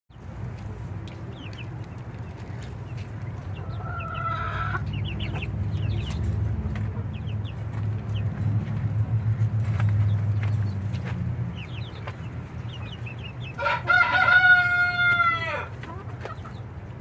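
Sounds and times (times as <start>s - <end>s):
chickens clucking: 0.2s - 17.0s.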